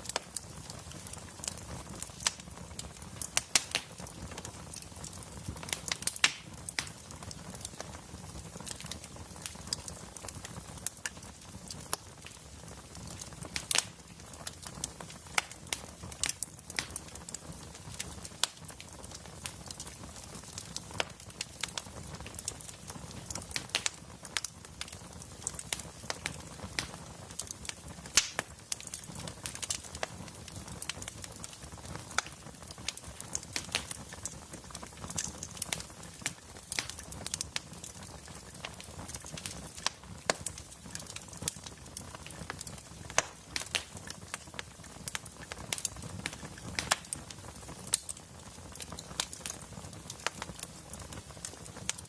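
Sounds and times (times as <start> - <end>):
soft hiss of burning: 0.0 - 52.0
wood fire crackling: 0.0 - 52.0
sharp pops and snaps: 3.2 - 4.0, 5.6 - 7.0, 15.4 - 17.0, 28.1 - 30.1, 33.2 - 34.2, 35.0 - 37.8, 38.5 - 41.6, 42.4 - 47.2.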